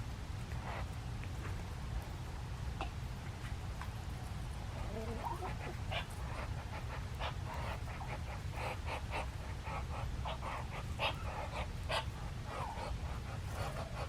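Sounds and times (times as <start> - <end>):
dog panting: 5.3 - 14.0.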